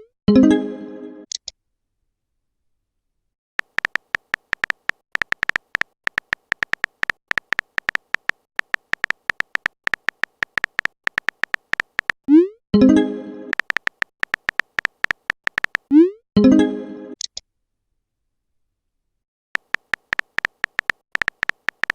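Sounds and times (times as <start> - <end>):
typing sound effect ticks: 3.6 - 12.2, 13.5 - 15.9, 19.6 - 21.9.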